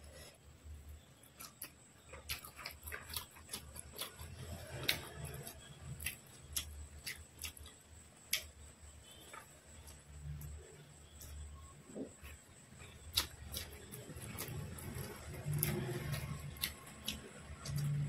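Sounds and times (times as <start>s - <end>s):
chewing with wet mouth clicks: 1.2s - 8.6s, 12.1s - 18.0s.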